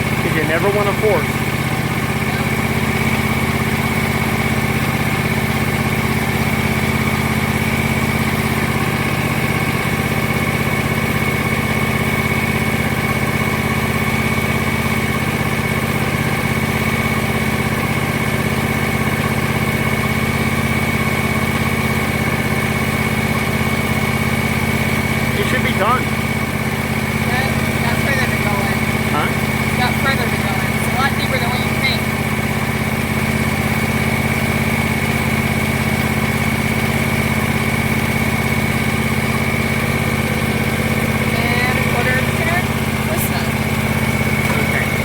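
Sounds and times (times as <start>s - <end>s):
steady whine: 0.0s - 12.9s, 22.2s - 45.0s
lawn tractor engine idling: 0.0s - 45.0s.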